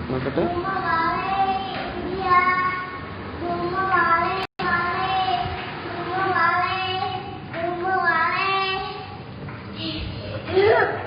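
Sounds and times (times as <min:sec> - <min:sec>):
child singing wordlessly: 0:00.5 - 0:09.2.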